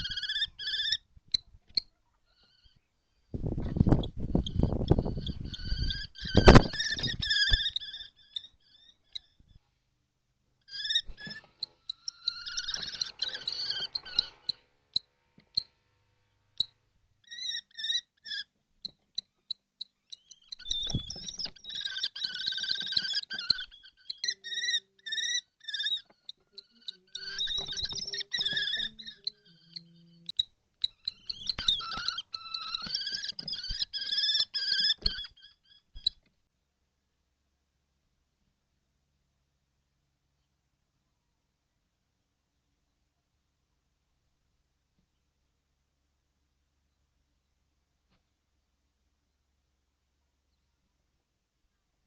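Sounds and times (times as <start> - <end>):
kestrels shrill trilled calls: 0.0 - 1.4, 4.0 - 9.4, 10.7 - 14.6, 17.2 - 18.5, 20.1 - 36.2.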